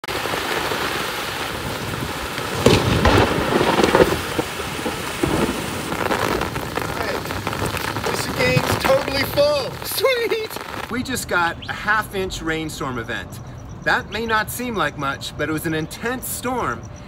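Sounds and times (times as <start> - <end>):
heavy rain falling: 0.0 - 11.3.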